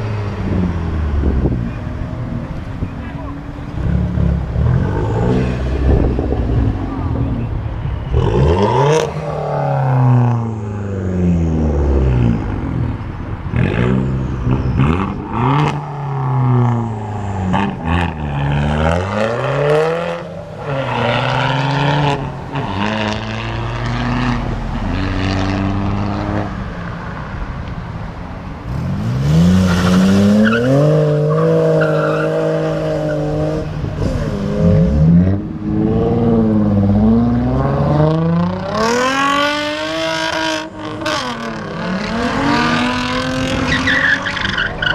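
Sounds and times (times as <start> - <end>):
cars accelerating away: 28.6 - 44.9.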